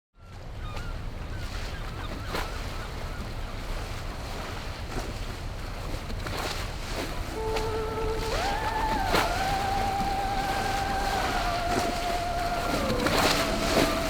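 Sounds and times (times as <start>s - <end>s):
wind buffeting microphone: 3.7s - 14.0s
water noise: 5.4s - 14.0s.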